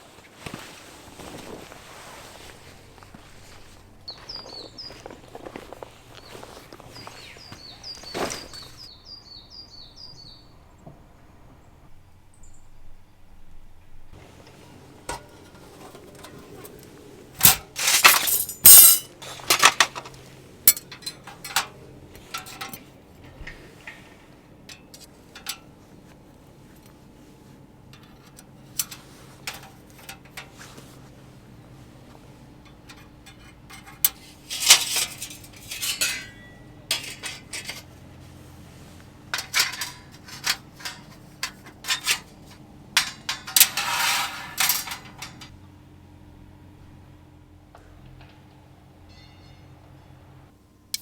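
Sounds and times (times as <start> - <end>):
harsh scraping or rustling: 0.0 - 8.9, 14.2 - 20.2, 33.0 - 45.5
bird rising chirp: 4.0 - 5.4
clinks and knocks of gear: 14.4 - 21.7.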